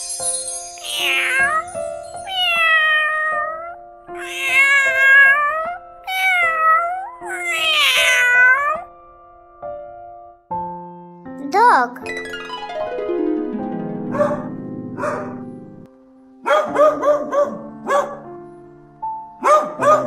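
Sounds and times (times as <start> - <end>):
background music: 0.0 - 20.0
cat meowing: 0.8 - 8.9.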